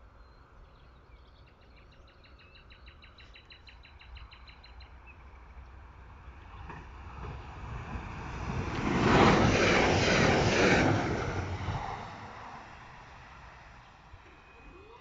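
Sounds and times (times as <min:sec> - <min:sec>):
train passing: 0:04.9 - 0:15.0.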